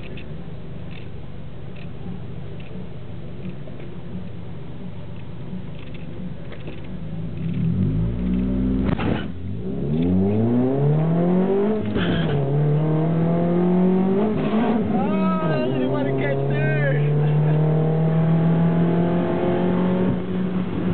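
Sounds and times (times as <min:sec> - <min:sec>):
car engine revving hard: 0:07.7 - 0:15.0, 0:15.7 - 0:20.9.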